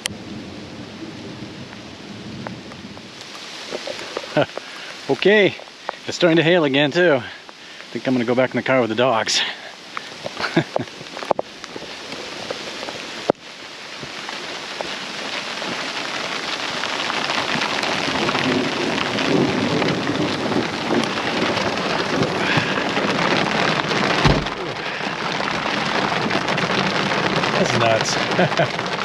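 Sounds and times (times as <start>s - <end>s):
heavy rain and hail: 0.0s - 29.0s
sharp knock: 24.2s - 24.5s
low thump: 24.2s - 24.7s.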